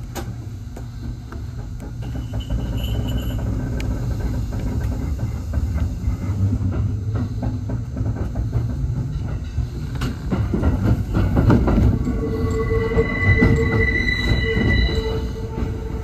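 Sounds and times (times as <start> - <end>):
electric train rumbling: 0.0 - 16.0
wheels clacking over rail joints: 0.0 - 16.0
high wheel squeal: 2.0 - 3.6, 11.8 - 16.0.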